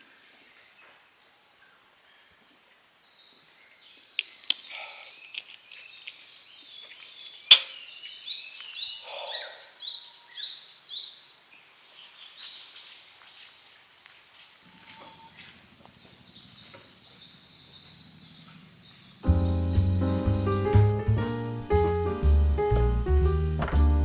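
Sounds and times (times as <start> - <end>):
wild birds singing: 0.0 - 20.9
sharp crack: 4.0 - 4.8, 7.4 - 8.8.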